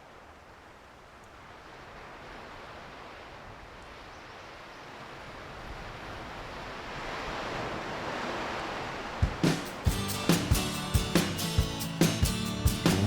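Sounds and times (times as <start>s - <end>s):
ocean surf breaking: 4.9s - 13.0s.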